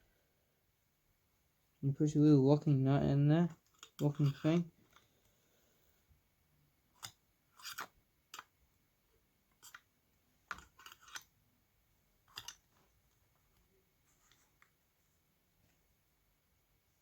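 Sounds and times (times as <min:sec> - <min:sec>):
small metal parts clicking: 0:10.5 - 0:11.3, 0:12.3 - 0:12.6.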